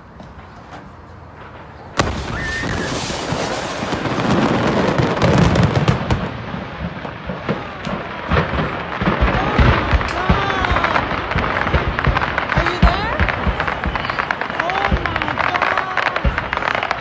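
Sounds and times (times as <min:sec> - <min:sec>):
fireworks crackling and popping: 0:01.2 - 0:17.0
sharp firework blast: 0:02.0 - 0:15.3.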